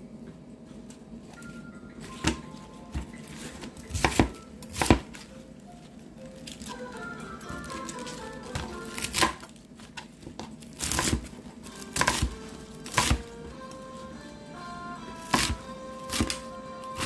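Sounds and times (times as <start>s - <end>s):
background music: 1.4s - 9.6s, 10.8s - 17.0s
knife chopping on cutting board: 2.2s - 5.2s, 10.3s - 13.3s, 15.2s - 16.4s.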